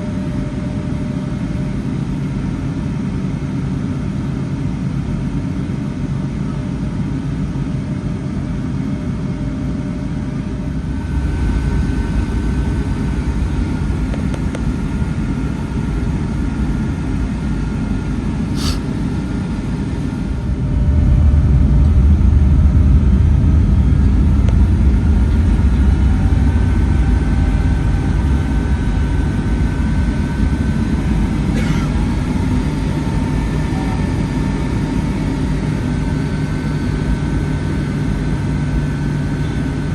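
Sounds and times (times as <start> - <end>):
jet engines rumbling: 10.6 - 39.9.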